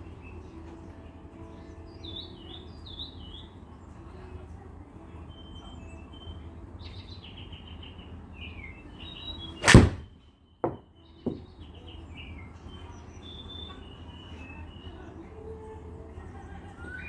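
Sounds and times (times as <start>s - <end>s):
golf club striking ball: 9.6s - 10.0s.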